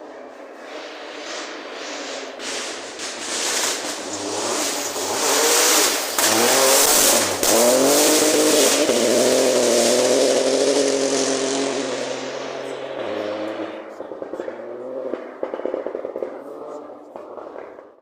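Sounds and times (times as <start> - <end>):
rally car engine high revs: 0.6 - 17.4
tyres hissing on gravel: 1.3 - 7.8.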